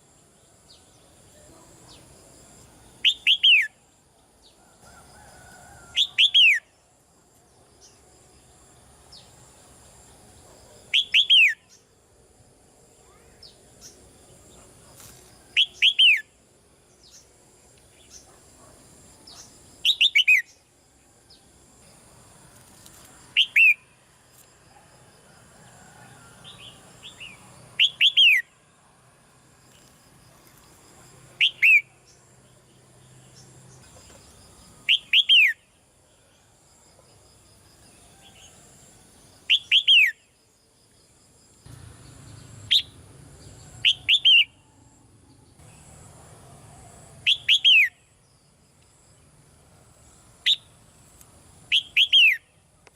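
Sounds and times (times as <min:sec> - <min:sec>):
bird calling with whistles: 0:03.0 - 0:03.8, 0:11.0 - 0:11.7, 0:19.9 - 0:20.5, 0:23.4 - 0:23.8, 0:27.8 - 0:28.5, 0:31.4 - 0:31.9, 0:34.9 - 0:35.6, 0:39.5 - 0:40.2, 0:43.8 - 0:44.6, 0:47.3 - 0:48.0, 0:51.7 - 0:52.5.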